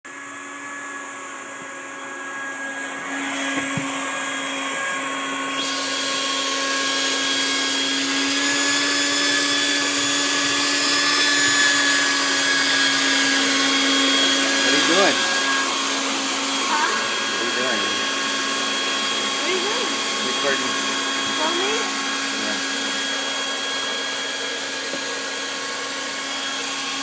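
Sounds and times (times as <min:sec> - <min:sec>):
electric motor whining: 0:00.1 - 0:27.0.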